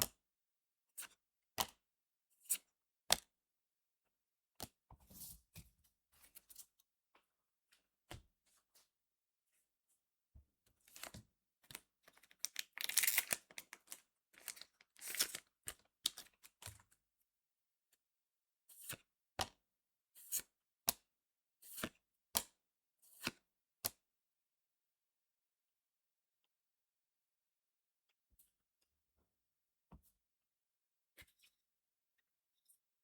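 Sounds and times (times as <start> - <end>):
foil wrapper crinkling and ripping: 12.2 - 15.5
cards snapping: 12.5 - 13.7.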